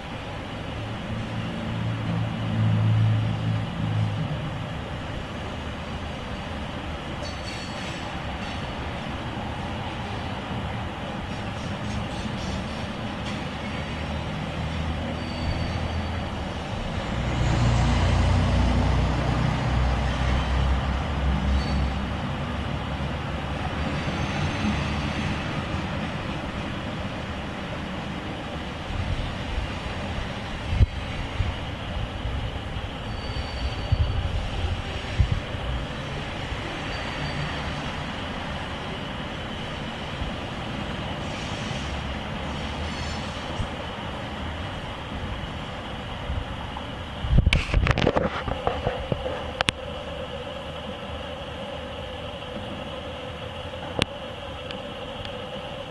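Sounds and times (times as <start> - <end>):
freight train rumble and wheel noise: 0.0 - 55.9
low engine drone: 8.7 - 55.9.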